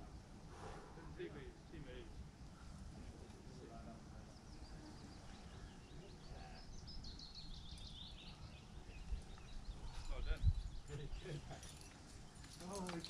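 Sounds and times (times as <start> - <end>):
small bird chirping: 4.3 - 12.9.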